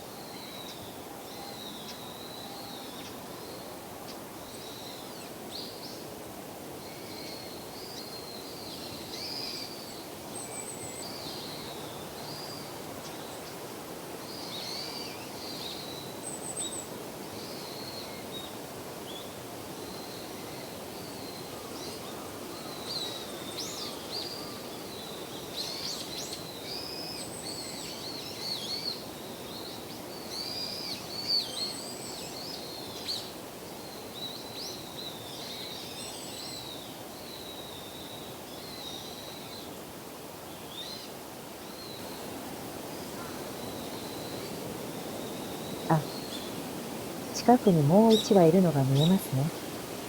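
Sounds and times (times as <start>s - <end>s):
songbirds chirping: 43.0s - 50.0s
distant background noise: 45.9s - 50.0s.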